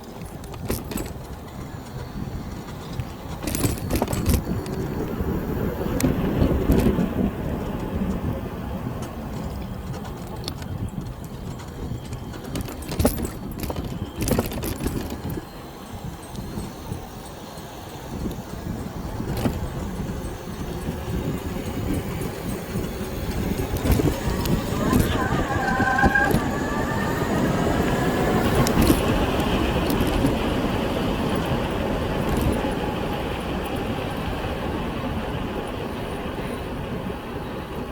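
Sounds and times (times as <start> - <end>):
bicycle clattering over bumps: 0.0 - 34.3
wind and road noise rumble: 0.0 - 37.9.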